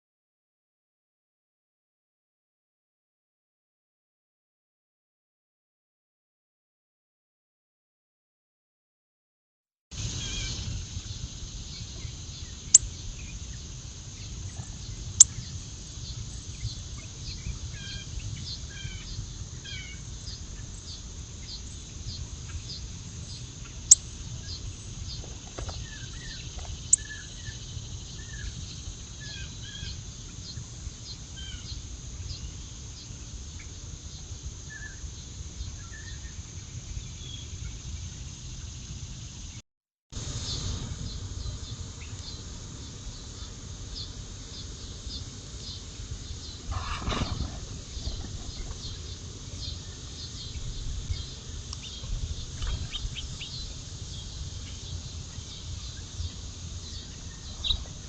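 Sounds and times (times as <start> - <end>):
birds chirping: 10.1 - 33.8, 40.5 - 58.0.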